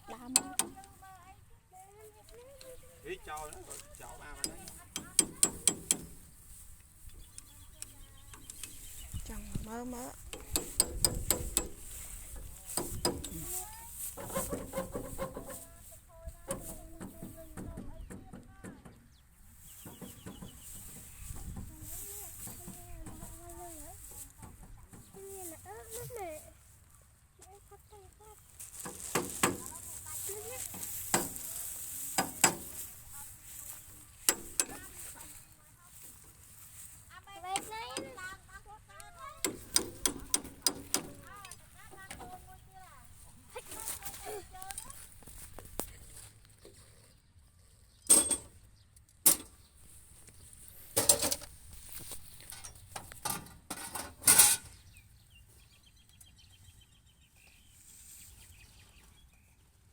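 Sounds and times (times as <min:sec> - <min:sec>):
metallic clanks and rattles: 0:04.2 - 0:06.3, 0:08.3 - 0:13.6, 0:34.2 - 0:35.2, 0:39.2 - 0:42.4, 0:48.1 - 0:48.6, 0:50.9 - 0:54.8.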